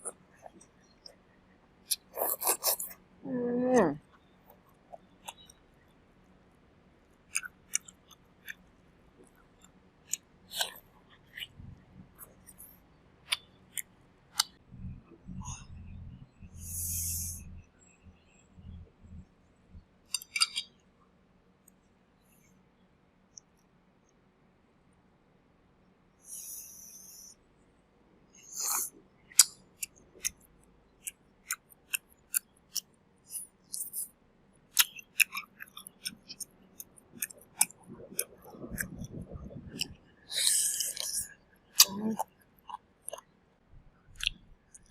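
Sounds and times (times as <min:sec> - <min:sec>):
muffled chewing: 0:01.9 - 0:03.0, 0:03.8 - 0:05.6, 0:07.2 - 0:14.6, 0:28.4 - 0:43.3.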